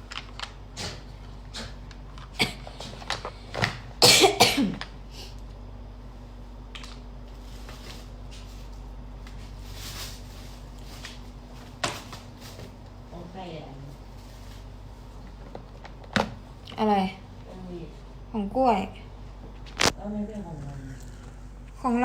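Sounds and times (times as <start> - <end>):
low electrical hum: 0.0 - 22.0
person coughing: 2.4 - 2.8, 4.0 - 4.8.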